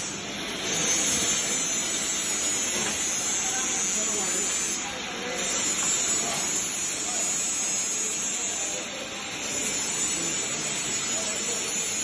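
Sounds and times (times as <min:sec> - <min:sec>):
welding arc hissing: 0:00.0 - 0:12.0.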